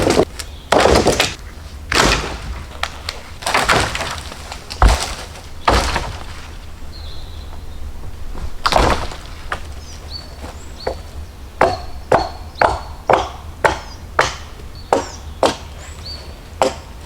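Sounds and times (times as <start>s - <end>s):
axe chopping wood: 0.0s - 6.5s, 8.6s - 9.8s, 11.6s - 15.7s, 16.6s - 16.9s.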